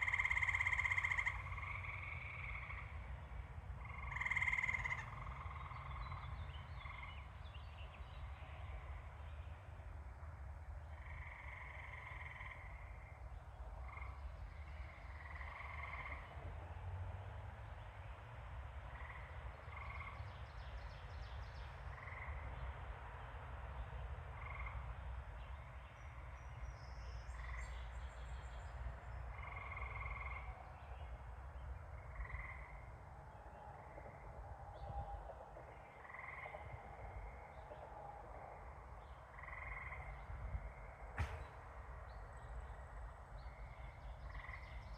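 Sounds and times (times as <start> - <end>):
frogs calling in a chorus: 0.0 - 3.2, 3.8 - 7.3, 10.9 - 16.4, 18.9 - 20.3, 21.9 - 22.6, 24.4 - 25.0, 29.2 - 30.7, 31.8 - 33.0, 35.2 - 41.0, 43.6 - 44.9
low steady rumble: 0.0 - 44.9.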